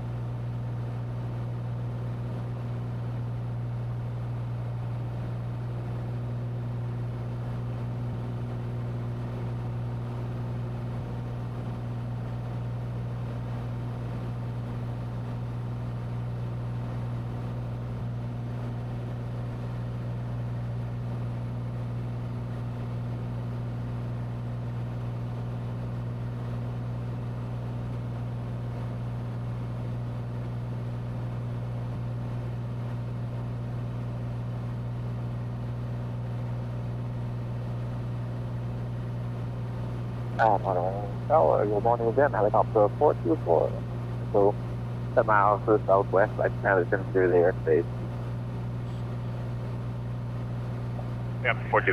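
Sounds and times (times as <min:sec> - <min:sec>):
airplane engine and propeller droning: 0:40.4 - 0:51.9.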